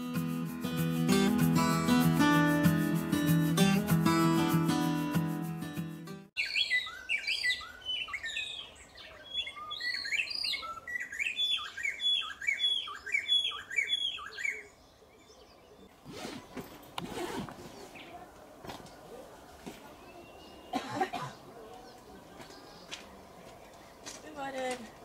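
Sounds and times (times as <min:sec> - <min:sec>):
birds chirping: 0:06.4 - 0:25.0.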